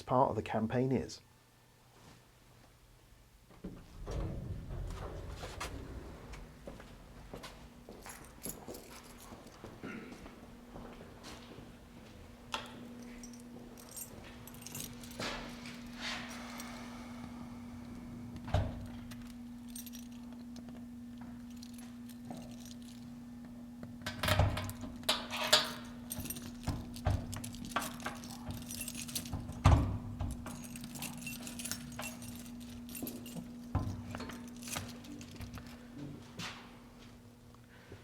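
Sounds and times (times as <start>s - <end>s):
low electrical hum: 0.0s - 38.0s
metallic jingling: 24.5s - 29.6s, 30.3s - 35.7s.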